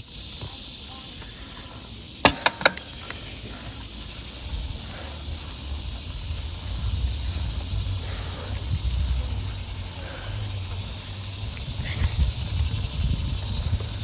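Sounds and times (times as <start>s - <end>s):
steady high hiss: 0.0s - 14.0s
wind rumbling on microphone: 2.9s - 14.0s.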